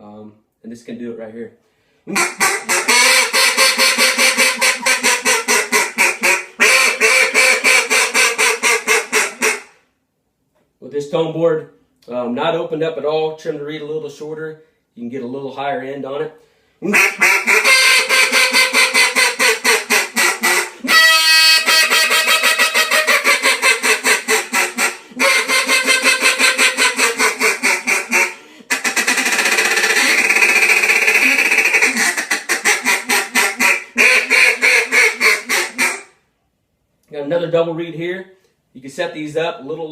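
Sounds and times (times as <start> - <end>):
duck call quacks: 2.1 - 9.8, 16.8 - 36.2.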